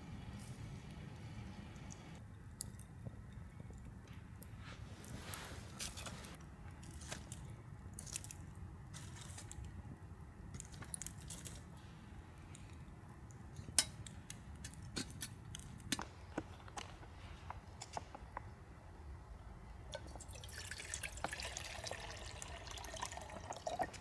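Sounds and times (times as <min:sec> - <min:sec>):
campfire twigs crackling: 0:00.2 - 0:18.2.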